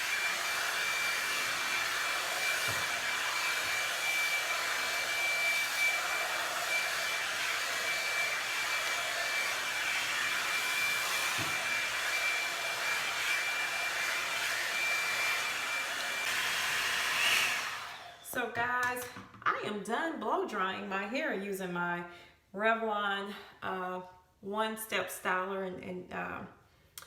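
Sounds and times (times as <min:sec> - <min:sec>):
hair dryer air noise: 0:00.0 - 0:19.3.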